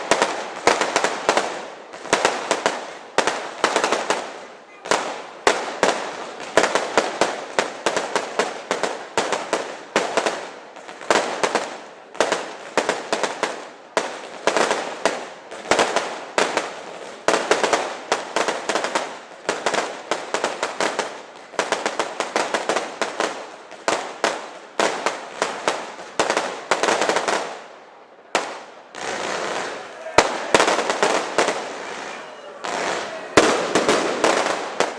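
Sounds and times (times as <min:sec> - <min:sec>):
fireworks bangs and crackling: 0:00.0 - 0:34.9.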